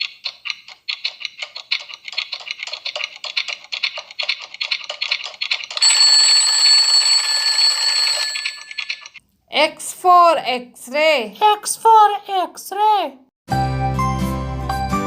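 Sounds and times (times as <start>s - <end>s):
alarm clock bell ringing: 5.8s - 9.2s.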